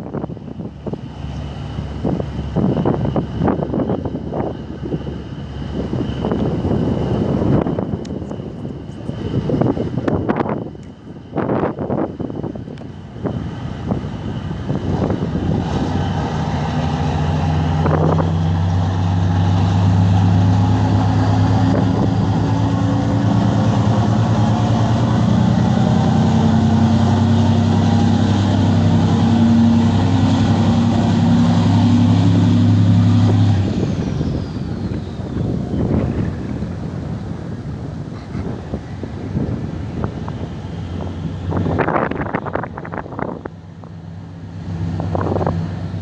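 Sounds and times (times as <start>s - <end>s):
wind noise on microphone: 0.0s - 46.0s
ship's horn long low blast: 11.4s - 46.0s.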